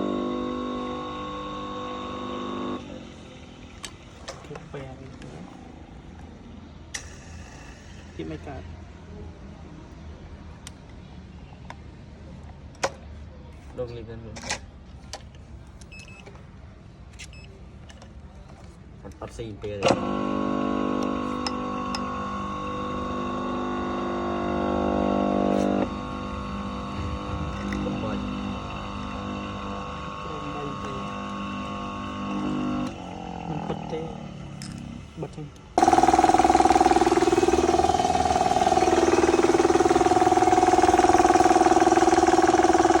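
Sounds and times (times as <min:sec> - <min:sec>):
air compressor motor hum: 0:00.0 - 0:06.1, 0:19.9 - 0:33.7, 0:35.8 - 0:43.0.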